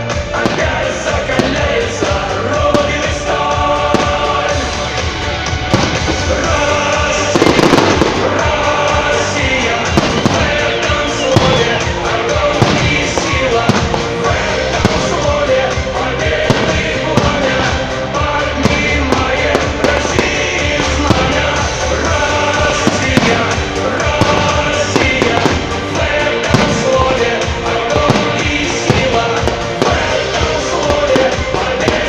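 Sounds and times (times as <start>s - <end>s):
fireworks bangs and crackles: 0.0s - 32.0s
loud music with singing: 0.0s - 32.0s.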